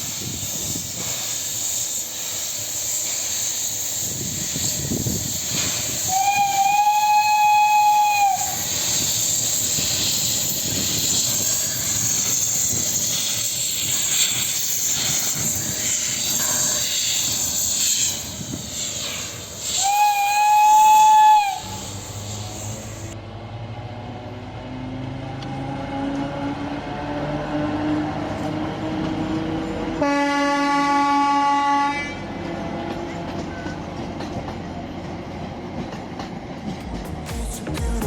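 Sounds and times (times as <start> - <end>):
steam hissing: 0.0 - 23.2
steam locomotive whistle: 3.4 - 10.3, 19.0 - 23.2, 30.0 - 32.2.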